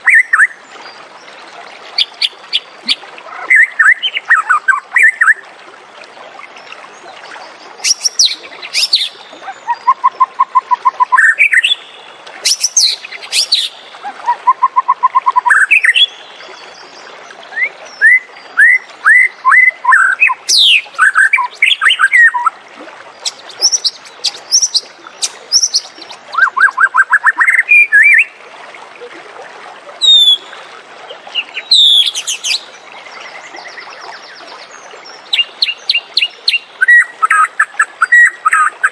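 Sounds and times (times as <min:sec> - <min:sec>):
bird singing whistles and chatters: 0:07.8 - 0:16.1, 0:23.2 - 0:28.3, 0:30.0 - 0:30.5.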